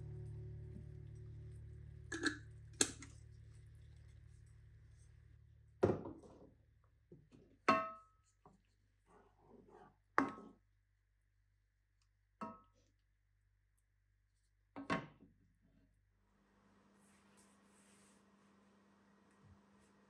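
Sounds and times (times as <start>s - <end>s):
low steady hum: 0.0s - 7.1s.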